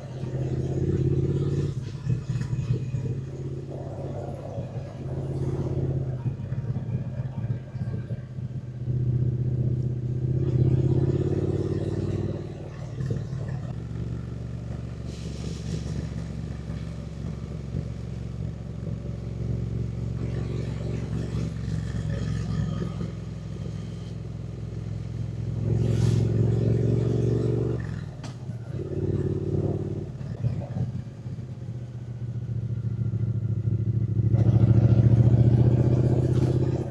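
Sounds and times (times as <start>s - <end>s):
motorcycle engine revving: 0.0s - 36.9s.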